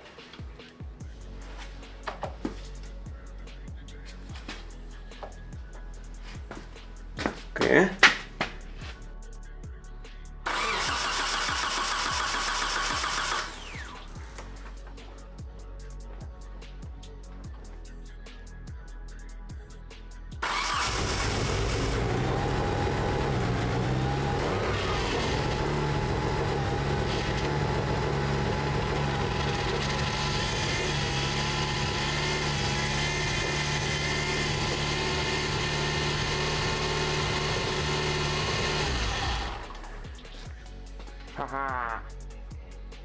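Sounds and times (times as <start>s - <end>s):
car engine idling fast: 10.5s - 14.7s, 20.4s - 40.6s.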